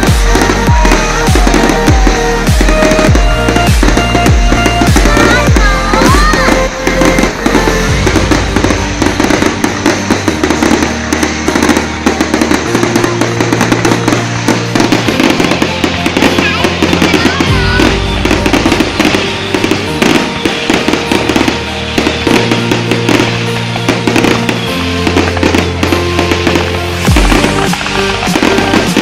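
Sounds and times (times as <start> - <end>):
fireworks crackling and bursting: 0.0 - 29.0
music with steady bass line: 0.0 - 29.0.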